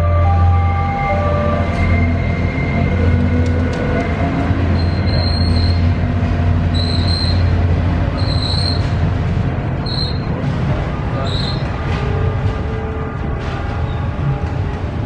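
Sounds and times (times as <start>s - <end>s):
train rolling over track: 0.0s - 15.0s
wheel squeal: 4.8s - 5.9s, 6.7s - 7.5s, 8.2s - 9.0s, 9.8s - 10.3s, 11.2s - 11.7s.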